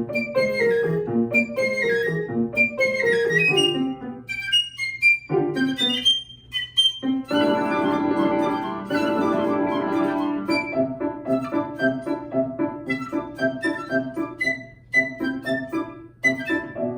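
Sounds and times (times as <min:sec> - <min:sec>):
flute: 0:00.0 - 0:16.9
piano: 0:00.0 - 0:16.9.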